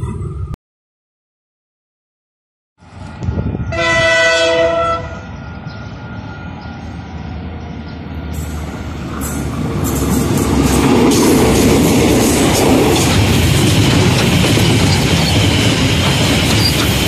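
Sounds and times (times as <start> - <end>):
train engine and wheels rumbling: 2.8 - 17.0
train horn: 3.6 - 5.4.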